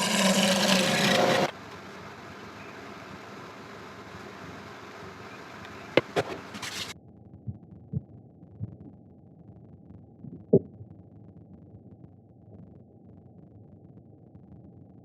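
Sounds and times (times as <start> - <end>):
steady machine hiss: 0.0 - 6.6
dull thumps: 5.9 - 6.7.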